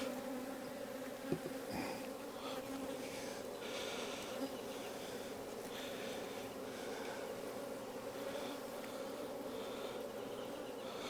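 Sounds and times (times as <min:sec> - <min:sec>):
bees buzzing: 0:00.0 - 0:11.0
light knocks of hive frames: 0:01.1 - 0:02.1.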